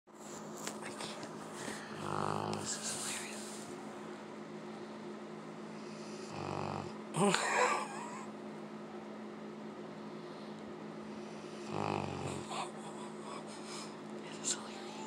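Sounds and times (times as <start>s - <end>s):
steady hum: 0.1s - 15.0s
dog snoring: 1.9s - 3.0s, 5.8s - 7.0s, 11.4s - 12.7s.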